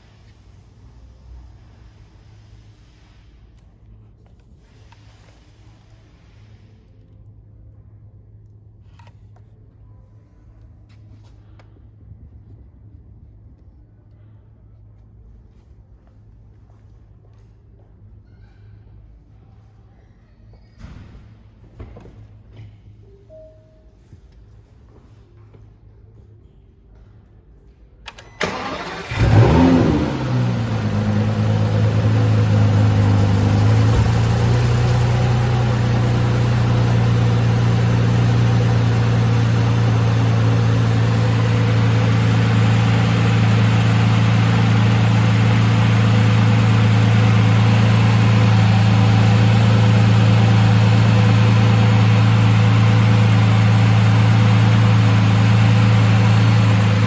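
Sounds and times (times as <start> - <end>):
engine starter cranking: 28.1 - 34.9
car engine revving and idling: 28.4 - 57.0.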